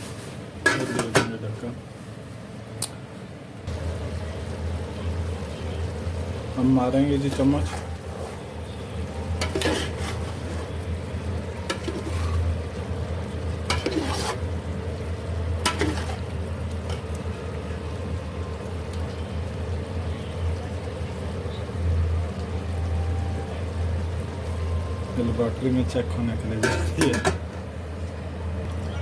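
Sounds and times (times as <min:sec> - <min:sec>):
spoon scraping a pot: 0:07.4 - 0:08.5, 0:09.4 - 0:10.8, 0:11.7 - 0:12.6, 0:13.7 - 0:14.5, 0:15.7 - 0:16.3, 0:26.6 - 0:27.4.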